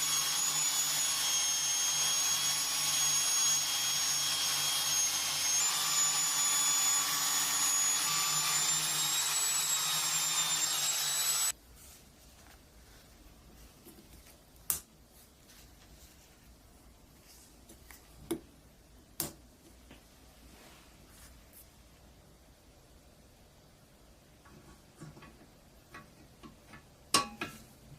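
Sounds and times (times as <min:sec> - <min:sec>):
small power tool whining: 0:00.0 - 0:11.5.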